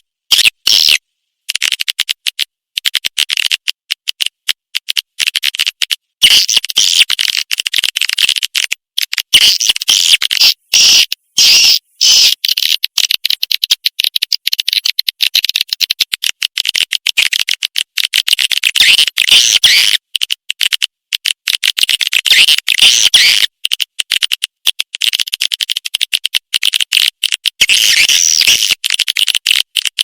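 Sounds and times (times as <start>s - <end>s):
swiftlet calls twittering: 9.3s - 12.3s.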